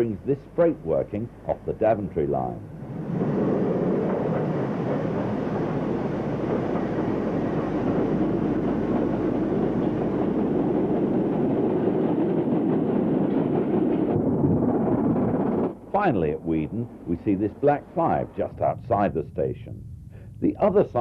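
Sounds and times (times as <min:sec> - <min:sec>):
steam train rumbling: 0:00.0 - 0:21.0
wheels clattering on rails: 0:02.4 - 0:18.4.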